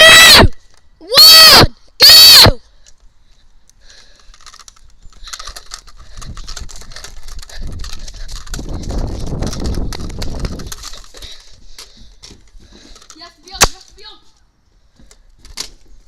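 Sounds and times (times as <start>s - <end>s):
camera handling noise: 4.1s - 11.2s
wind rumbling on microphone: 5.2s - 11.4s.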